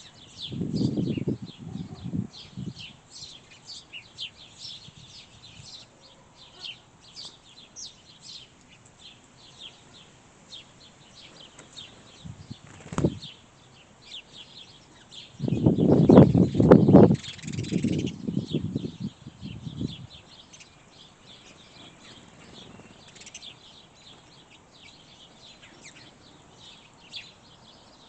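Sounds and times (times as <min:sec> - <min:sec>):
small songbirds chirping: 0:00.0 - 0:28.0
wings flapping: 0:11.3 - 0:13.3.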